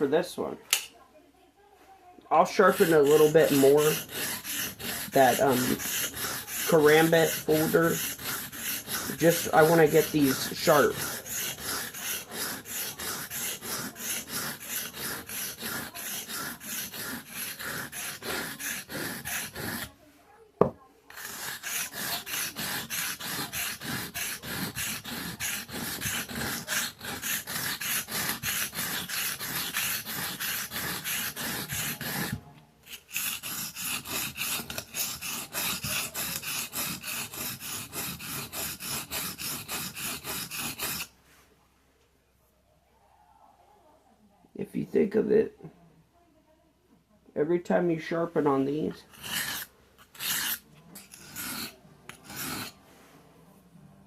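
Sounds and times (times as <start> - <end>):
knife scraping on whetstone: 2.4 - 20.0, 21.1 - 41.1, 48.9 - 52.8.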